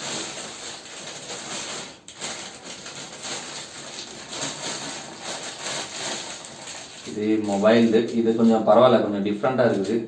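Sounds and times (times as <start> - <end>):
packaging rustling and crackling: 0.0 - 8.7, 9.6 - 10.0.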